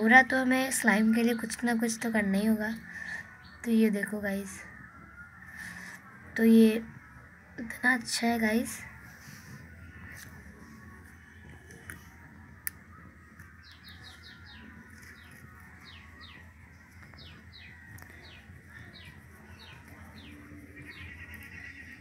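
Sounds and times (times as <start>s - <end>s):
small bird chirping: 13.4s - 22.0s.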